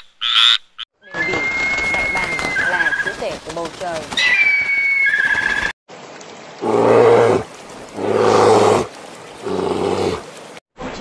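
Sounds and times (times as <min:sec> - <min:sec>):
large animal roaring: 0:06.6 - 0:10.3.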